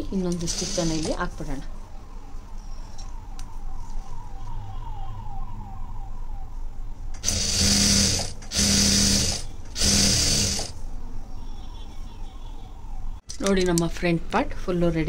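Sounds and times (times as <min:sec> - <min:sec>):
sewing machine stitching: 0:07.2 - 0:10.7.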